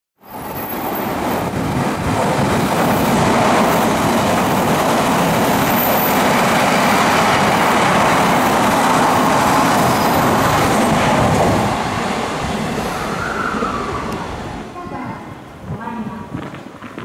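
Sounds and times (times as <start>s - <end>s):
train rushing past: 0.2s - 16.8s.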